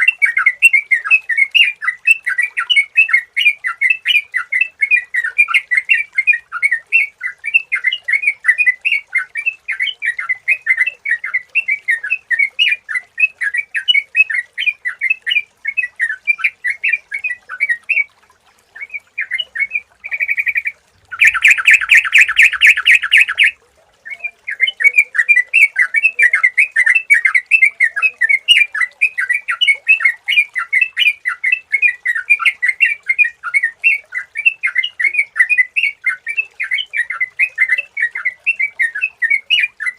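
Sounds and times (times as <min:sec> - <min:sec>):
bird chirping rapidly: 0:19.2 - 0:23.6.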